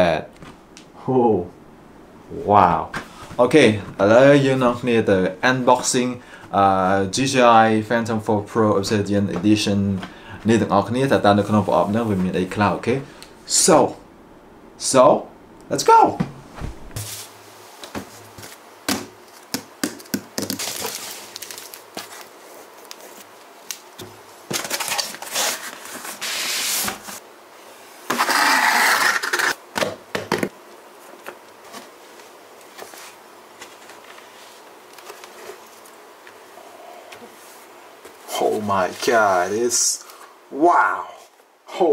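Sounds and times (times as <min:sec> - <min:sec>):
cardboard and plastic rustling: 0:16.6 - 0:27.2, 0:31.0 - 0:36.0
packaging clicks and knocks: 0:18.9 - 0:21.7.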